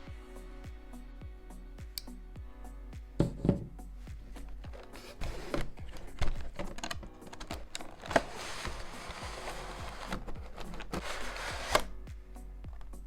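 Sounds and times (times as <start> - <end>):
soft background music: 0.0 - 13.0
cardboard rustling: 4.4 - 11.9.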